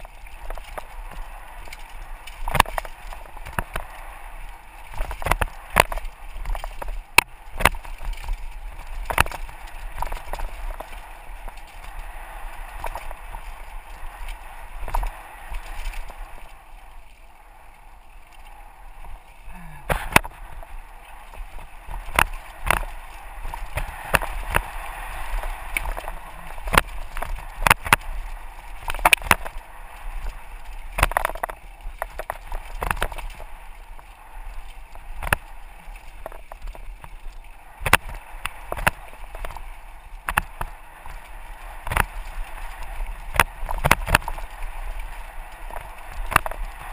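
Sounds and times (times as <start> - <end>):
bike clacking and rattling: 0.0 - 3.9, 4.8 - 16.5, 19.9 - 39.6
bike tyres rushing on dirt: 0.0 - 46.9
wind on microphone: 0.0 - 46.9.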